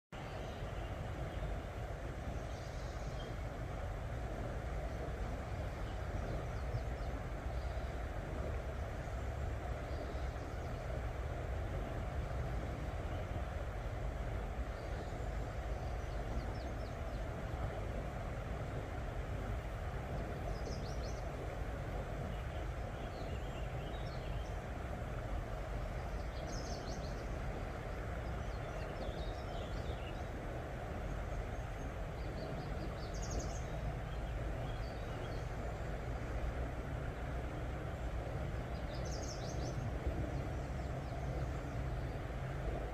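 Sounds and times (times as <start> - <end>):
low rushing background noise: 0.2 - 42.9.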